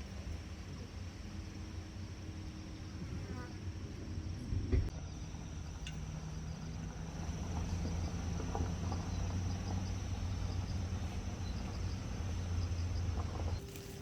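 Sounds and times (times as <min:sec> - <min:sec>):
crickets chirping: 0:00.0 - 0:14.0
steady low hum: 0:00.0 - 0:14.0.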